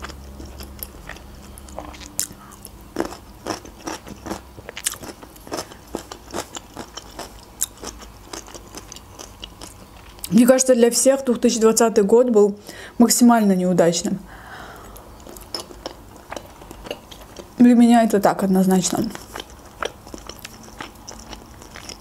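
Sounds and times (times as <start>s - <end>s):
crunchy chewing: 0.0s - 10.3s, 14.8s - 17.6s, 18.9s - 22.0s.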